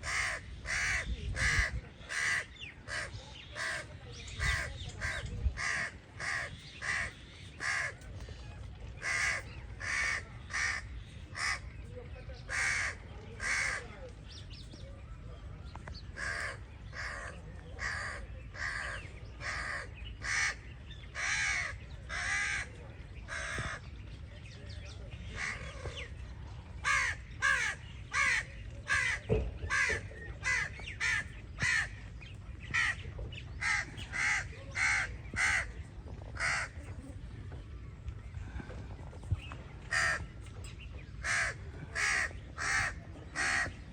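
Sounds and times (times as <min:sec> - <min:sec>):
crow cawing: 0:00.0 - 0:03.8.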